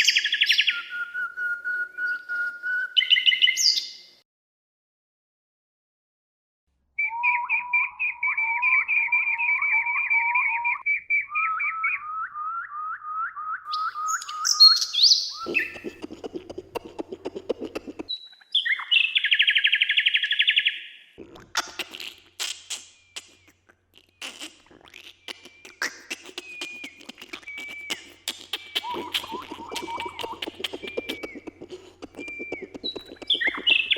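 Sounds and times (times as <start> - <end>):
songbirds singing: 13.5 - 33.9.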